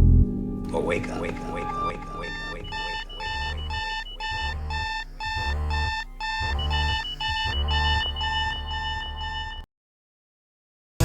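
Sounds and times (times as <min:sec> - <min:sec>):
music with pulsing bass: 0:00.0 - 0:09.6
person speaking: 0:00.7 - 0:08.2
alarm clock beeping: 0:00.7 - 0:09.7.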